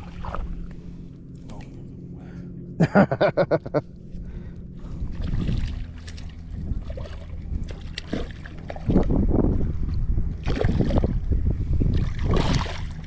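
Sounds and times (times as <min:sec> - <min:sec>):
steady low hum: 0:00.0 - 0:13.0
wind gusting on microphone: 0:04.3 - 0:13.0.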